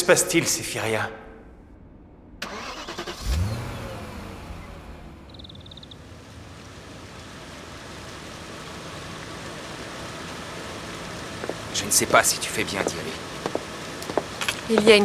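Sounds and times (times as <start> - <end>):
engine revving: 1.5 - 14.7
rapid ticking: 5.2 - 15.0.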